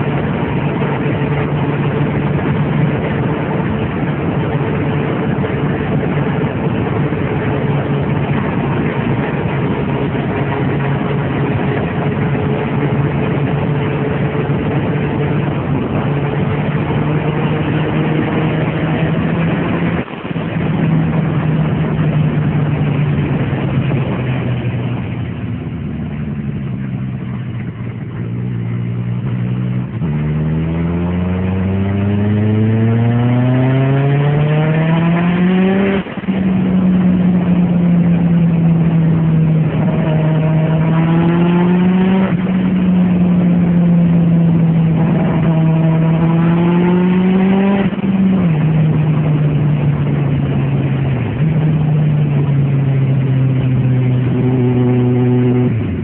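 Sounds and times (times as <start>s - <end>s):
motorcycle engine at high speed: 0.0s - 56.0s
wind rush: 0.0s - 56.0s.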